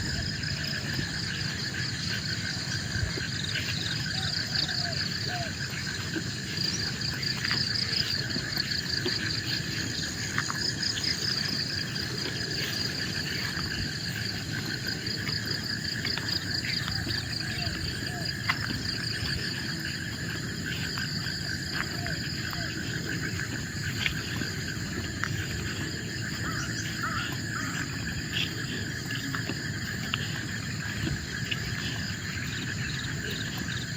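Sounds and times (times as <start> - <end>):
insects trilling: 0.0 - 33.9.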